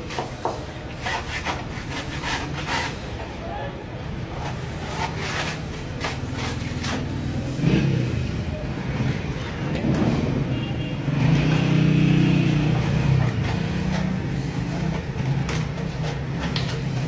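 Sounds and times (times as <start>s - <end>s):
scraping strokes: 0.0s - 3.3s, 4.3s - 7.7s, 12.4s - 17.0s.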